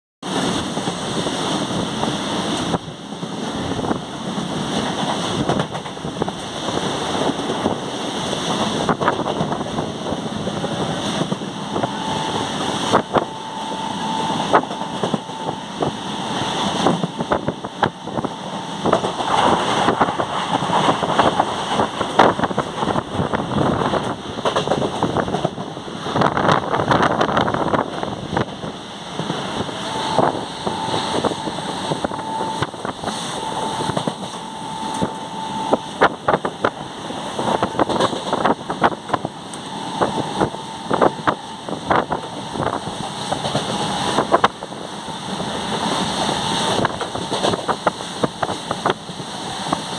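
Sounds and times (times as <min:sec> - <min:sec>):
train running rumble: 0:00.2 - 0:49.9
wind buffeting microphone: 0:00.3 - 0:34.4, 0:35.0 - 0:49.9
wheels clacking over rails: 0:02.0 - 0:07.9, 0:23.8 - 0:28.6, 0:36.0 - 0:49.9.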